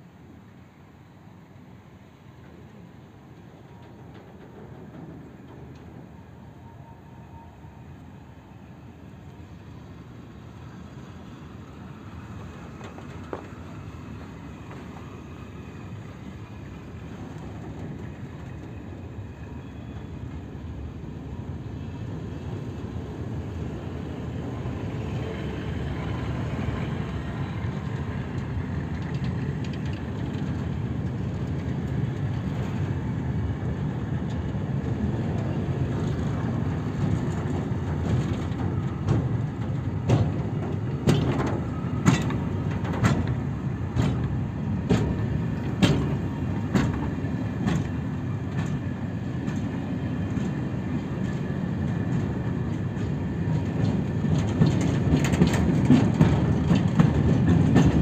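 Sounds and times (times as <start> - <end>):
freight train rumble: 0.0 - 58.0
wheel clacks over rail joints: 26.9 - 32.9, 34.2 - 58.0.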